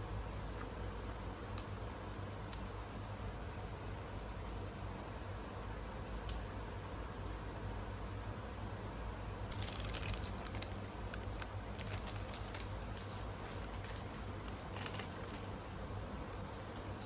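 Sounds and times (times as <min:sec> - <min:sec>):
steady low hum: 0:00.0 - 0:17.0
crisp eating clicks and crackles: 0:09.5 - 0:17.0.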